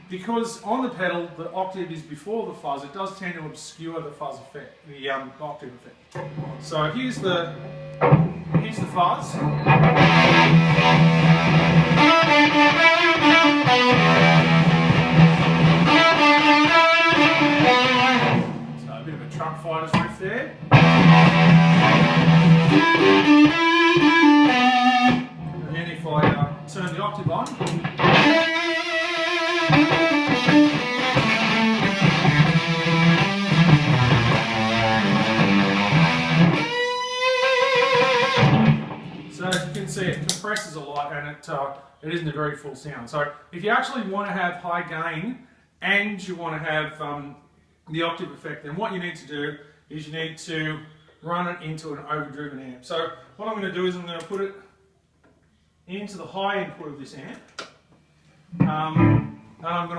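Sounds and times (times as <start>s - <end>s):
heavily fuzzed electric guitar riff: 6.1s - 40.6s, 58.5s - 59.6s.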